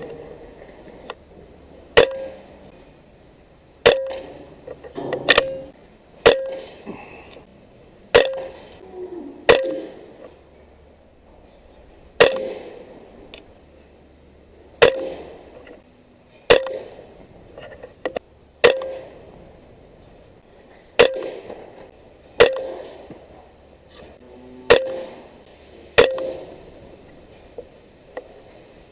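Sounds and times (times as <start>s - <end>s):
air rifle shots: 3.8s - 4.4s, 8.1s - 8.8s, 9.5s - 10.2s, 12.2s - 13.0s, 14.8s - 15.7s, 16.5s - 17.1s, 18.6s - 19.4s, 21.0s - 21.8s, 22.4s - 23.2s, 24.7s - 25.3s, 26.0s - 26.8s.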